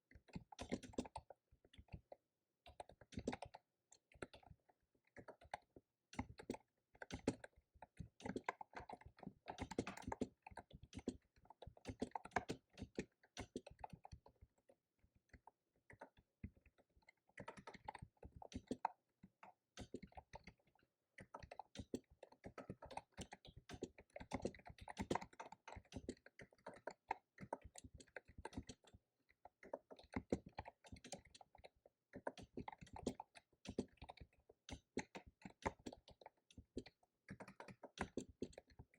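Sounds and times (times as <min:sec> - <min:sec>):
fast typing on keyboard: 0:21.2 - 0:29.0, 0:29.6 - 0:38.9.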